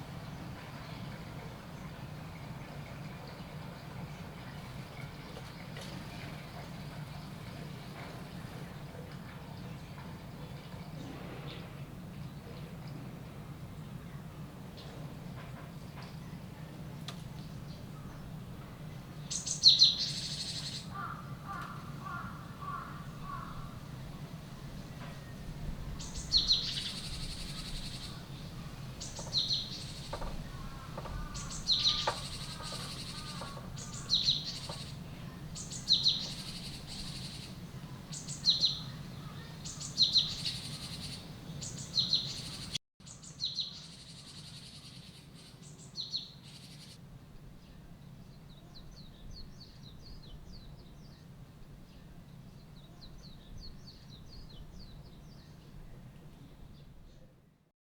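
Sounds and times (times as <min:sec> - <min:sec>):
small bird calls with hissing rush: 0:19.3 - 0:24.0, 0:25.9 - 0:43.2, 0:43.8 - 0:47.0.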